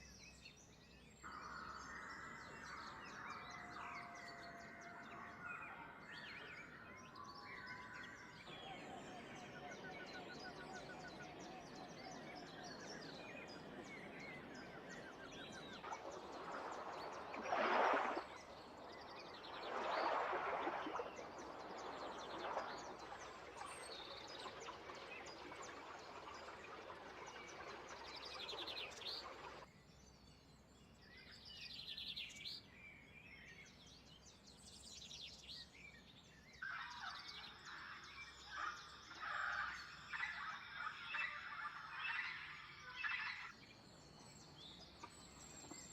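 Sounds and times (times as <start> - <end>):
wild birds chirping: 0.0 - 30.2, 36.5 - 45.9
noisy swells: 8.2 - 29.6.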